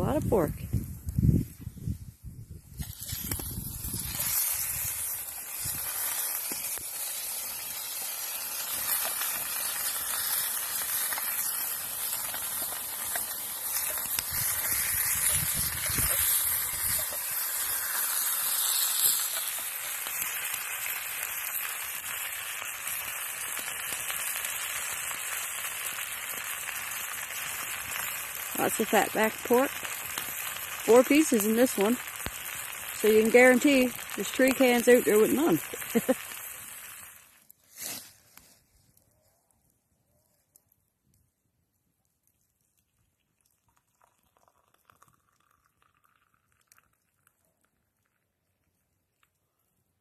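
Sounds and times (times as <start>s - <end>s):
food sizzling in a frying pan: 2.7s - 38.0s.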